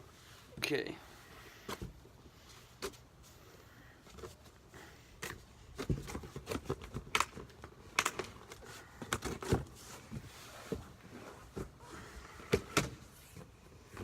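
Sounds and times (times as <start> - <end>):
clicks and knocks of parts: 5.2 - 9.6.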